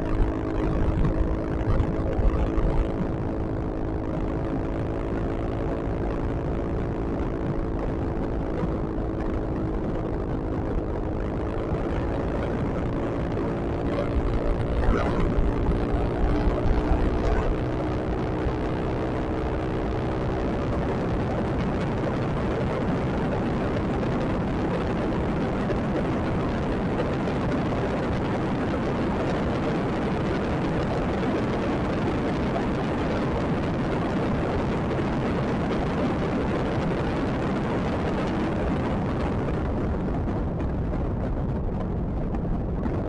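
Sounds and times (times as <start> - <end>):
humming tone: 0.0 - 23.8
wind and road noise: 0.0 - 43.0.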